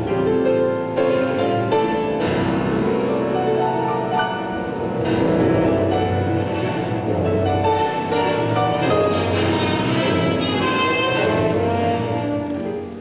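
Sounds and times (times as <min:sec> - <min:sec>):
orchestral music held chords: 0:00.0 - 0:13.0.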